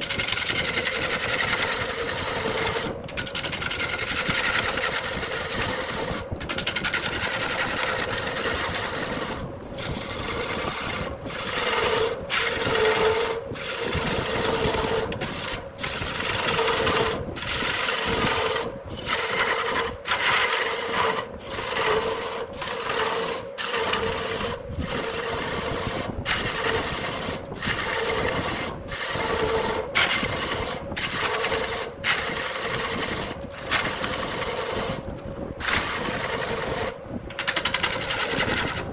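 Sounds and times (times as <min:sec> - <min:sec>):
lathe motor hum: 0:00.0 - 0:38.9
tool scraping wood: 0:00.0 - 0:38.9.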